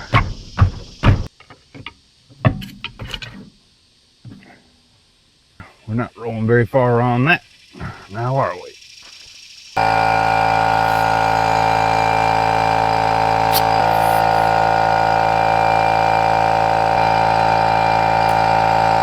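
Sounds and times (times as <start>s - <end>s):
air compressor humming: 9.8s - 19.0s.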